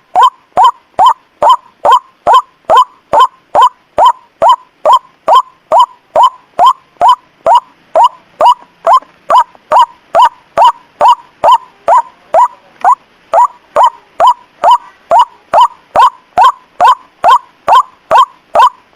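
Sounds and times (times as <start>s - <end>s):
waterhen call notes: 0.0s - 18.9s.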